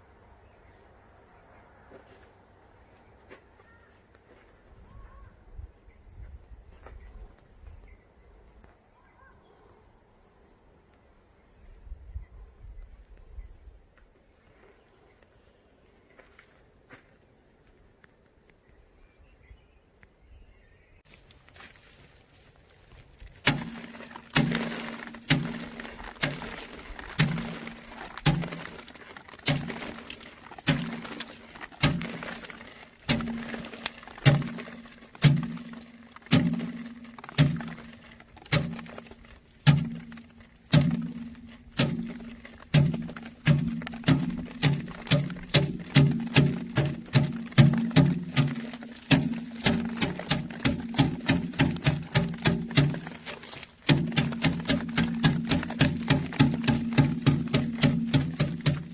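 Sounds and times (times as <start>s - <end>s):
grain heads thwacked by hand: 23.4s - 58.9s.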